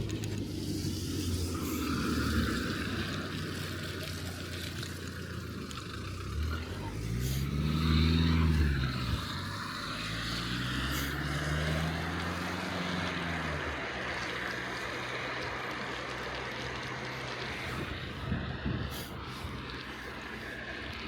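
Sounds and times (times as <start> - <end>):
vehicle engine passing: 0.0 - 21.0.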